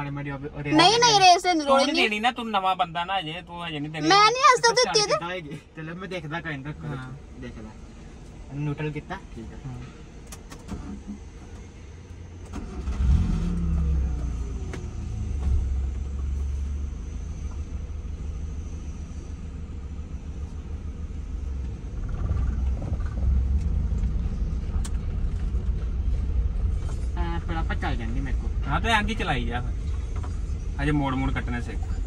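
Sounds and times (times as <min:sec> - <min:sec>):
car engine revving: 0:06.6 - 0:32.0
low rumble: 0:11.8 - 0:32.0.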